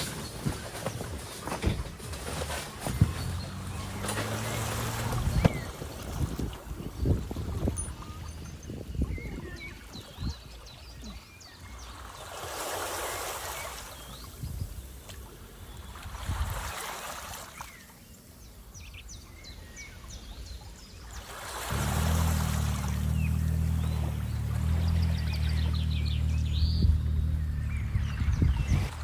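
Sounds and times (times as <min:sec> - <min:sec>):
waves washing in: 0:00.0 - 0:07.6, 0:21.1 - 0:26.5
small birds chirping: 0:00.0 - 0:12.5, 0:13.2 - 0:29.0.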